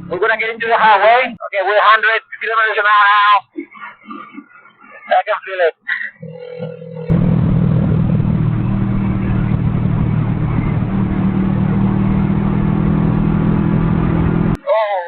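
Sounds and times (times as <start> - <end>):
motorcycle engine cruising: 0.0 - 0.2, 6.6 - 14.6
wind rushing: 7.1 - 14.6.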